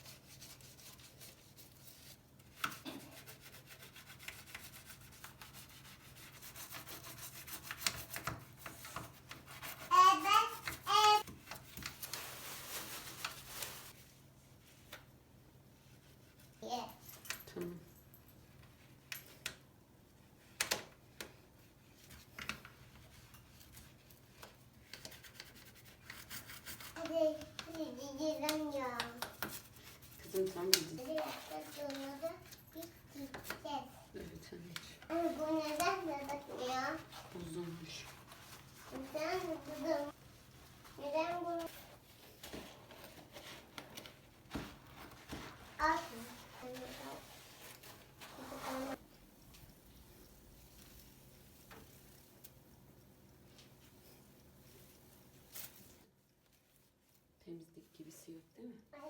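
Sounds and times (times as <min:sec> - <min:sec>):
rubbing strokes: 0:00.0 - 0:14.8, 0:25.0 - 0:33.9, 0:35.0 - 0:52.5
young child's wavering voice: 0:09.9 - 0:11.3.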